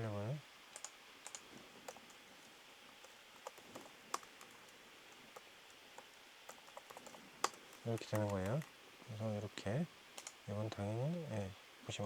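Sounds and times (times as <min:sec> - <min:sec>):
faint keyboard typing: 0:00.7 - 0:08.8, 0:10.2 - 0:10.9.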